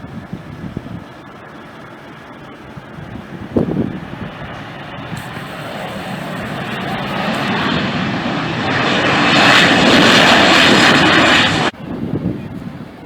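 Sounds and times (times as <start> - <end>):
jet airliner passing: 3.1 - 11.8.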